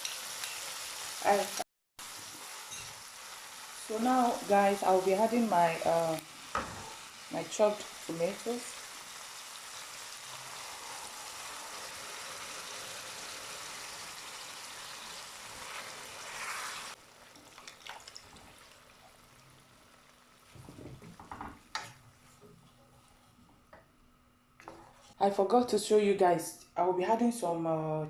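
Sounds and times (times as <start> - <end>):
food sizzling in a pot: 0.0 - 22.5
faint knocks and clatters: 20.5 - 24.0.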